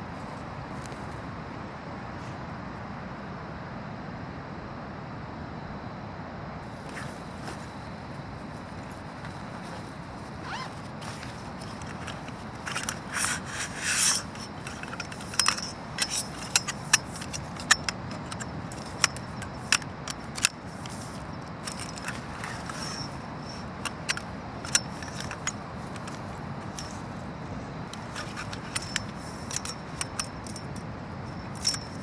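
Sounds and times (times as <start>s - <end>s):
fabric and frame rubbing: 6.6s - 32.0s
frame pieces clicking together: 8.4s - 32.0s.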